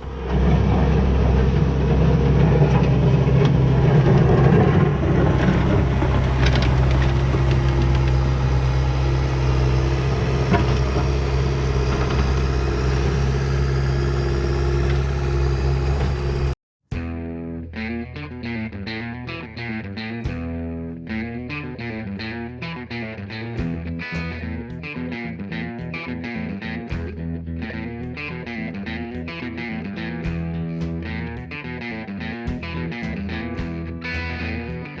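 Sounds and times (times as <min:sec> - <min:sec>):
skid steer engine running: 0:00.0 - 0:16.6.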